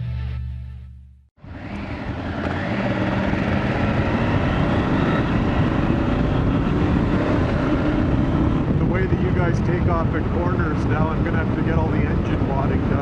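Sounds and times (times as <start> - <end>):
music: 0.0 - 1.3
motorcycle engine running: 1.4 - 13.0
riding wind noise: 1.4 - 13.0.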